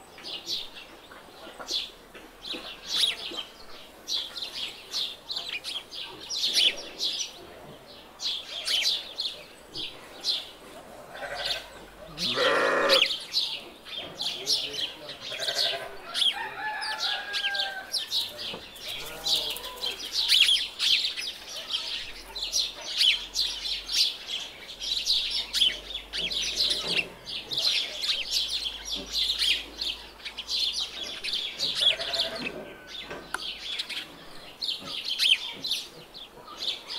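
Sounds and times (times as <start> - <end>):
small birds twittering: 0.0 - 36.9
low animal calls: 11.1 - 13.1.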